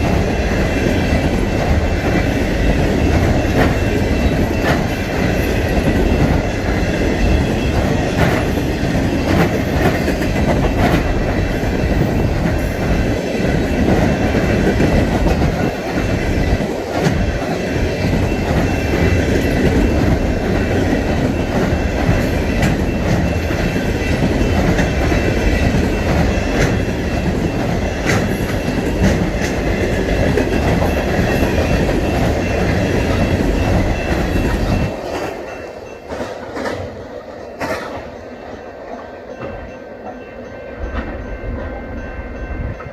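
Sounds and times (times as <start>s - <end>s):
clickety-clack over rail joints: 0.0s - 42.9s
freight train wheels rumbling: 0.0s - 42.9s.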